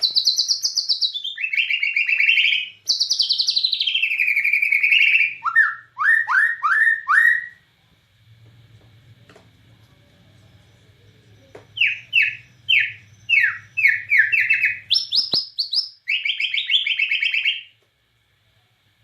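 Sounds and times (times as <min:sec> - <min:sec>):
bird singing whistles and trill: 0:00.0 - 0:07.6, 0:11.8 - 0:17.7
faint low hum: 0:00.0 - 0:19.0.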